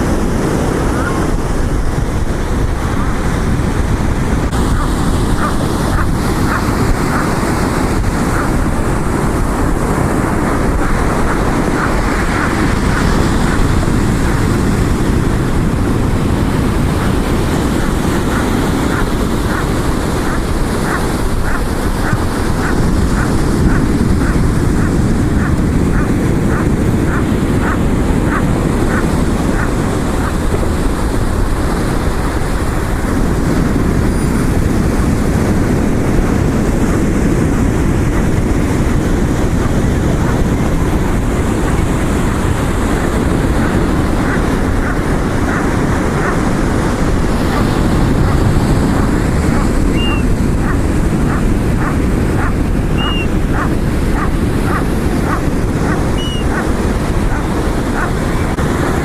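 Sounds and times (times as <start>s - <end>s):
surf: 0.0s - 59.0s
wind on microphone: 0.0s - 59.0s
gulls calling: 4.5s - 31.3s, 39.2s - 59.0s.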